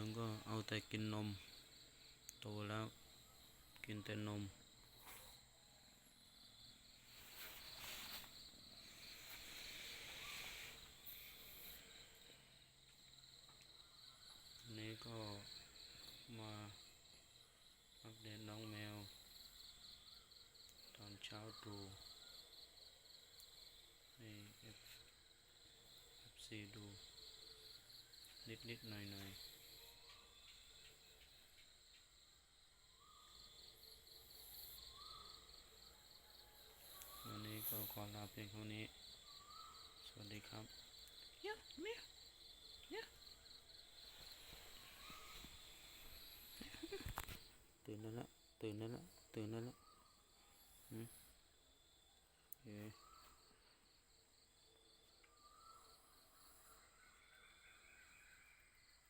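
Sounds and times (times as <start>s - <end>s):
faint insect chirring: 0.0s - 59.0s
soft rustles: 7.0s - 11.0s.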